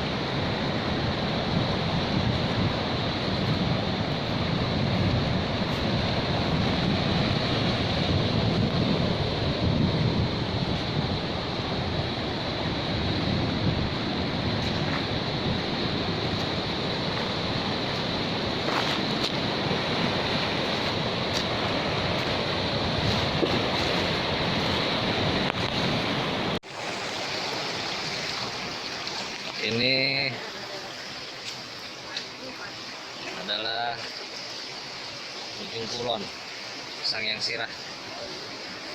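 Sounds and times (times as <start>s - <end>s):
wind on microphone: 0.0s - 29.6s
surf washing onto beach: 0.0s - 38.9s
thin steady hiss: 26.7s - 38.9s.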